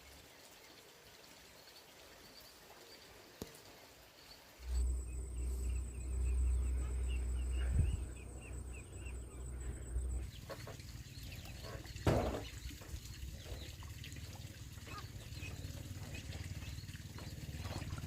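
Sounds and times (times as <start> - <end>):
high insect buzz: 4.6 - 10.2
low rumble: 4.6 - 10.4
thump: 12.0 - 12.5.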